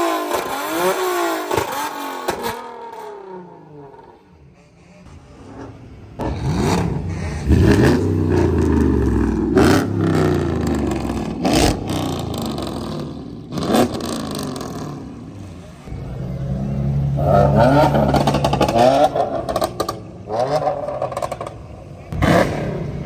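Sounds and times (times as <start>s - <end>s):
car engine revving: 4.8s - 23.0s.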